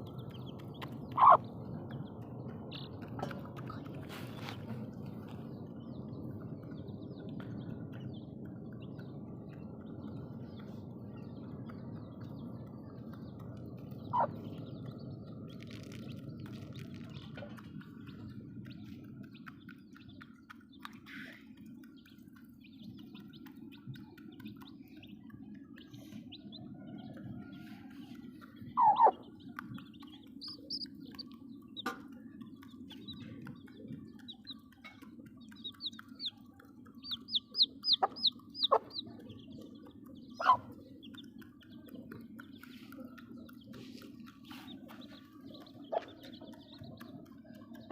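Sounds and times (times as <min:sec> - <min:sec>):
chicks peeping: 0:00.0 - 0:47.9
low background hum: 0:00.0 - 0:47.9.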